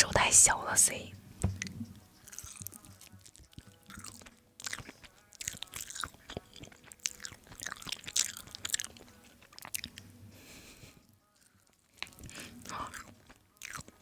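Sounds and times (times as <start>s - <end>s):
person chewing crunchy food: 1.6s - 10.2s, 11.3s - 14.0s.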